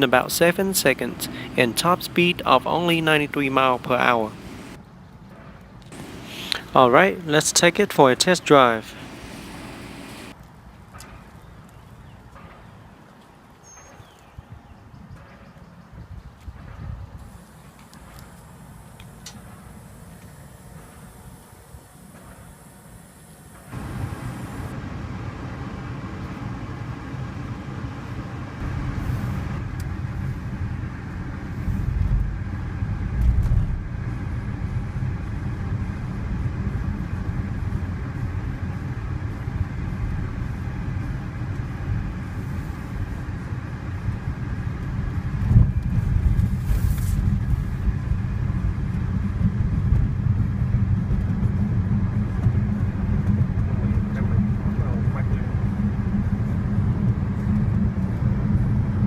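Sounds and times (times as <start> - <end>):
road and tyre noise: 0.0 - 4.8, 5.9 - 10.9, 23.6 - 59.0.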